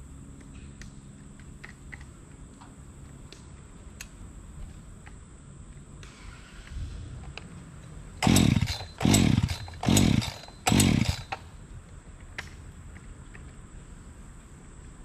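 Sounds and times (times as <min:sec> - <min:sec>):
chainsaw pull-start turning over: 0:08.2 - 0:11.5.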